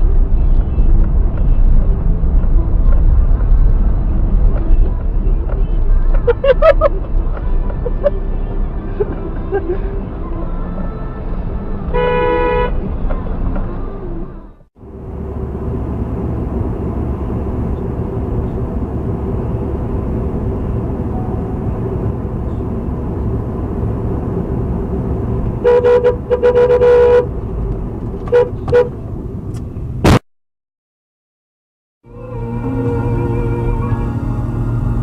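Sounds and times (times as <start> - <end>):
car road and engine noise: 0.0 - 30.2, 32.0 - 35.0
car horn honking: 11.9 - 12.8, 25.6 - 27.4, 28.3 - 29.0.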